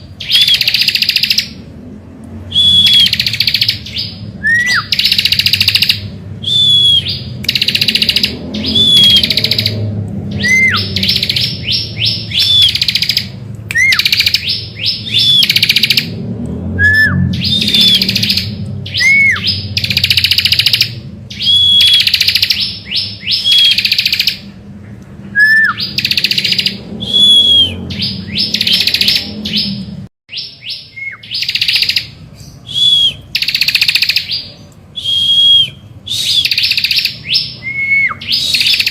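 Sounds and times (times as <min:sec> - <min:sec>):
bird singing buzzy trills: 0:00.0 - 0:01.7, 0:02.4 - 0:38.9
low rumble: 0:01.5 - 0:04.9, 0:05.6 - 0:21.8, 0:24.4 - 0:30.1.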